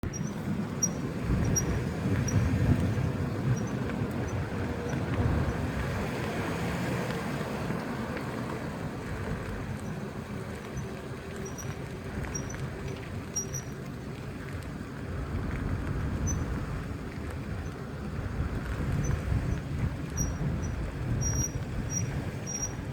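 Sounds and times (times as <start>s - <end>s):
car brakes squeaking: 0.0s - 4.4s, 20.2s - 22.9s
moving car rumble: 0.0s - 22.9s.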